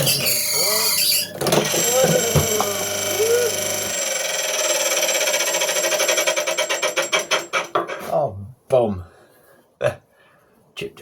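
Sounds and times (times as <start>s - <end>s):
squeaks of rubbing on workpiece: 0.0s - 1.4s
wood lathe running: 0.0s - 7.8s.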